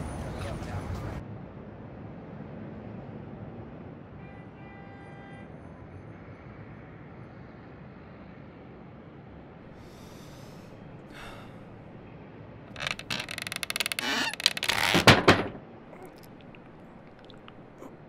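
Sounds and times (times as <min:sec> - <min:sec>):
breathy sniffs: 0:09.8 - 0:11.7
man choking croak: 0:15.9 - 0:18.0.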